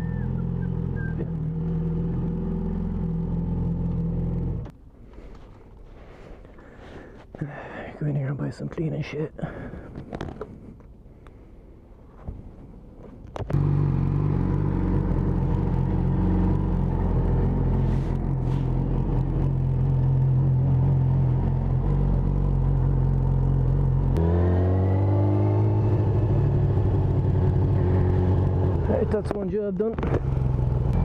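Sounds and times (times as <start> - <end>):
motorcycle engine running: 13.5 - 29.4, 30.0 - 31.0.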